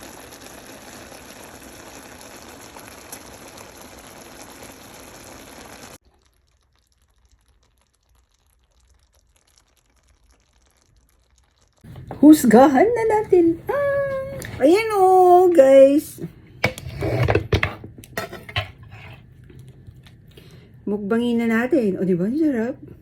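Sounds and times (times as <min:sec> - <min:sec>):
food sizzling in a pan: 0:00.0 - 0:14.6, 0:18.2 - 0:19.3.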